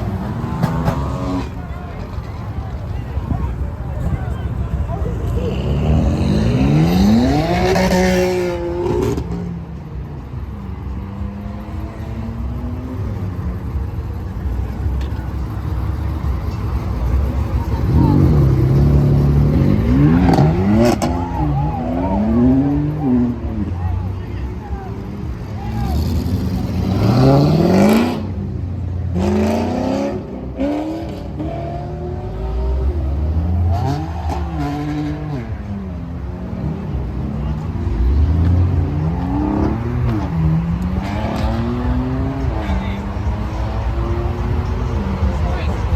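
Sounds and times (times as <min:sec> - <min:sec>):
car engine accelerating: 0:00.0 - 0:45.9
low engine rumble: 0:09.6 - 0:26.8.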